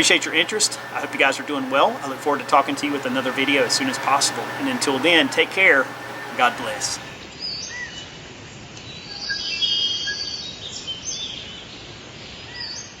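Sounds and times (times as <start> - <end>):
steady background hiss: 0.0 - 7.2.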